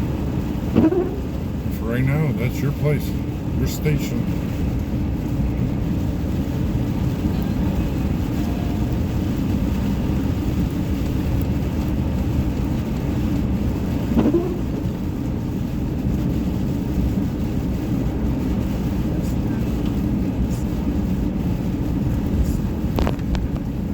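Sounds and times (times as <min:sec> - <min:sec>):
car road and engine rumble: 0:00.0 - 0:23.9
brief rising-pitch sound: 0:00.8 - 0:01.3.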